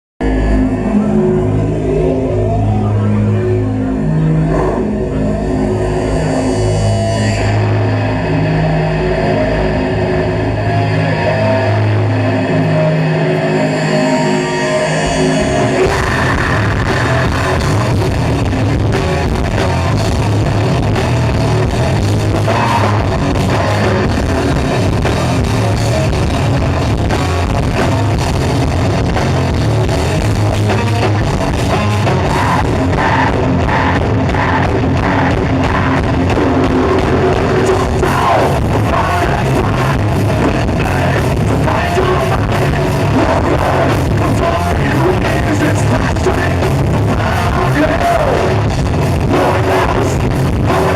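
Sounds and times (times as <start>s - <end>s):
heavy rock band playing: 0.2s - 50.9s
person singing: 9.3s - 18.1s, 32.0s - 50.9s.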